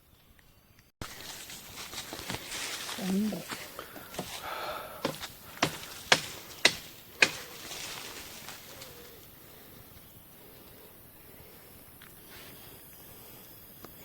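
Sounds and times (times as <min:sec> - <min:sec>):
sharp cracks: 0:05.0 - 0:07.9.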